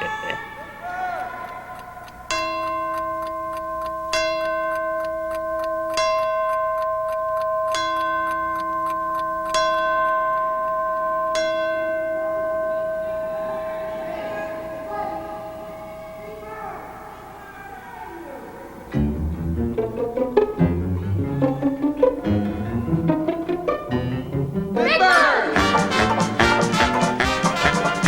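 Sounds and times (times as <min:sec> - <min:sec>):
clock bell striking: 0:01.5 - 0:17.1.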